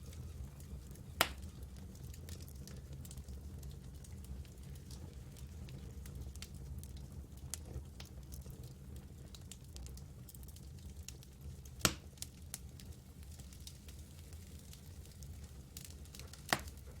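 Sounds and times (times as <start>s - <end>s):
campfire wood crackling: 0.0s - 17.0s
loud pop of fire: 1.2s - 1.6s, 11.8s - 12.2s, 15.8s - 16.8s.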